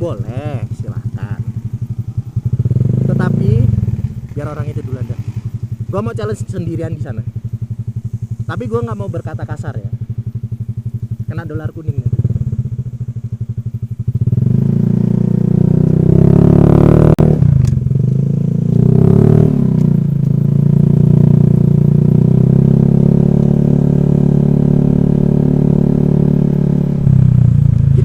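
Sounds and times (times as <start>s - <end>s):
scooter engine running: 0.0s - 28.0s
sharp click: 17.6s - 17.8s.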